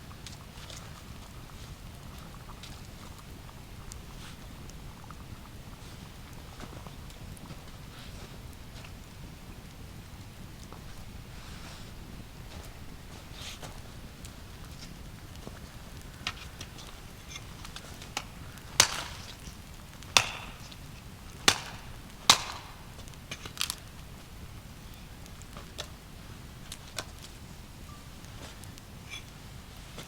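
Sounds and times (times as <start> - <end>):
wood being chopped: 18.2 - 19.4, 20.1 - 20.8, 21.4 - 23.8.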